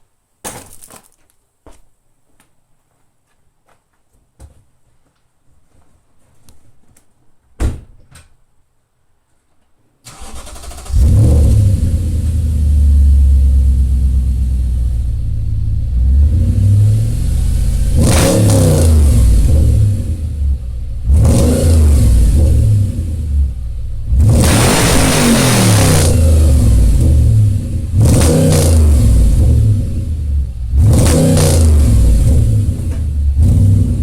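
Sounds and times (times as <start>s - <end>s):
car engine starting and idling: 10.1s - 34.0s.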